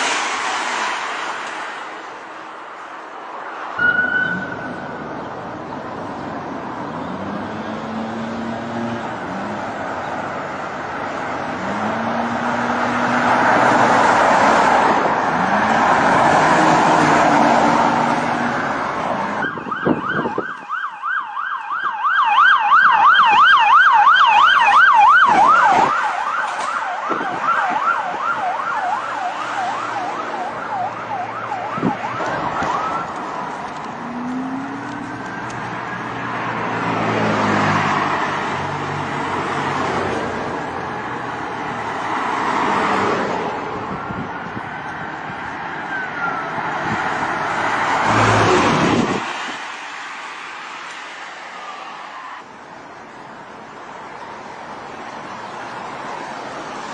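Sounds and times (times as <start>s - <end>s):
road and wind noise: 0.0s - 56.9s
police siren yelping: 16.5s - 36.0s, 45.7s - 47.0s.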